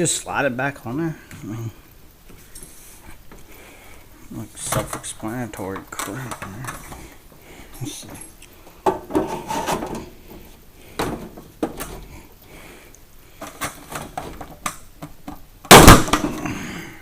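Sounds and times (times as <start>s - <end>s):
plastic parts clicking and knocking: 4.6s - 7.1s, 8.8s - 12.1s, 13.4s - 16.5s
sudden loud bang: 15.7s - 16.4s.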